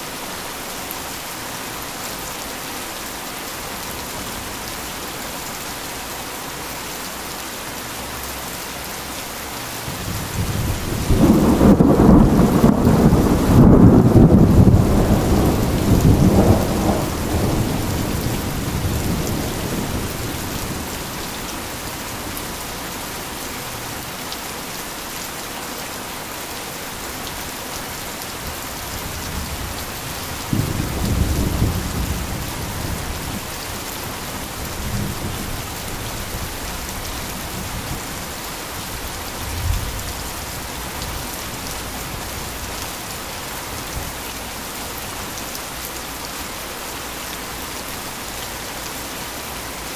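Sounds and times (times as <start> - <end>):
heavy rain falling: 0.0 - 49.9
thunder rumbling: 10.1 - 21.1, 30.4 - 33.5.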